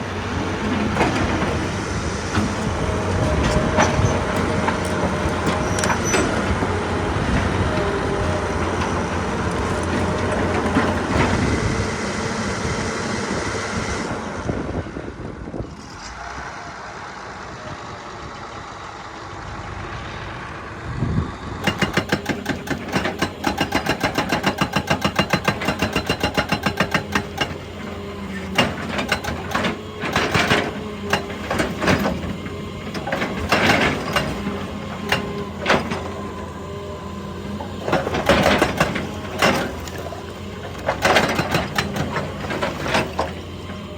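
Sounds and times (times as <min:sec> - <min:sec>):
excavator diesel engine running: 0:00.0 - 0:43.9
hydraulic rock breaker hammering: 0:00.2 - 0:11.8, 0:21.6 - 0:43.9.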